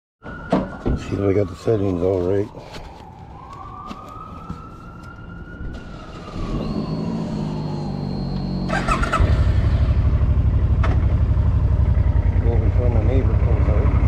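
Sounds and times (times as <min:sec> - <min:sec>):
distant siren wailing: 0:00.2 - 0:14.0
motorcycle engine idling: 0:08.6 - 0:14.0.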